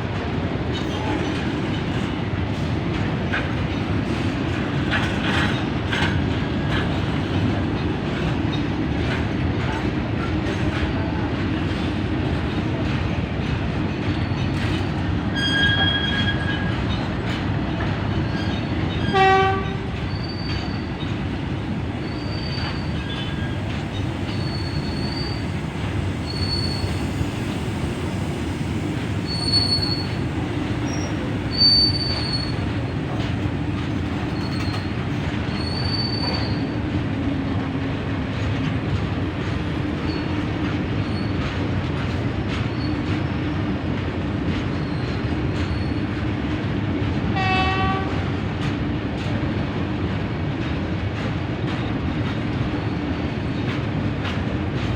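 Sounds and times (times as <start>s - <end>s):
train running on track: 0.0s - 54.9s
train horn blast: 19.0s - 20.0s, 47.3s - 48.3s
high wheel squeals: 22.0s - 25.6s, 26.2s - 27.5s, 29.2s - 32.6s, 35.5s - 36.6s.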